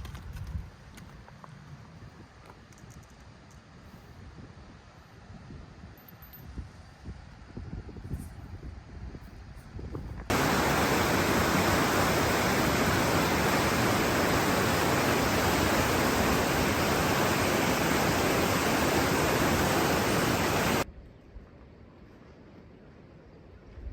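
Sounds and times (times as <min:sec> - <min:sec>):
faint outdoor ambience: 0:00.0 - 0:23.9
loud steady static hiss: 0:10.3 - 0:20.9.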